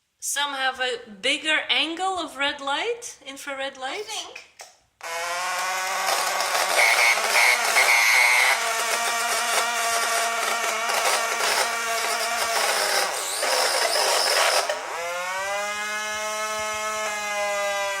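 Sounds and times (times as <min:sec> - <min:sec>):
harsh noisy buzz: 0:05.0 - 0:17.3
steady buzzing tone: 0:05.3 - 0:15.6.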